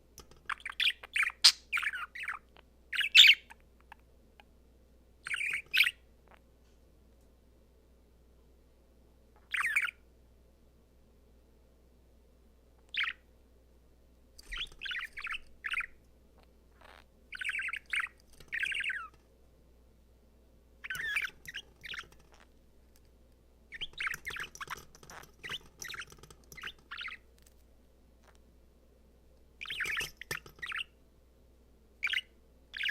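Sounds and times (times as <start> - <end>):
budgerigar warbling and chirping: 0.5 - 3.6, 5.2 - 6.0, 9.4 - 10.0, 12.9 - 13.2, 14.4 - 16.0, 16.8 - 19.2, 20.8 - 22.4, 23.7 - 27.2, 29.6 - 31.0, 32.0 - 32.9.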